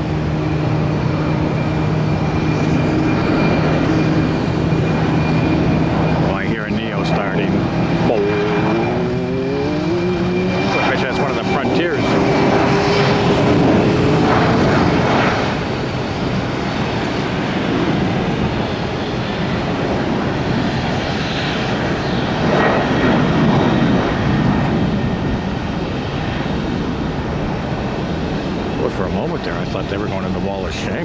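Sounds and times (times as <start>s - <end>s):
thin whine: 0.0s - 16.0s
jet engines at takeoff: 0.0s - 31.0s.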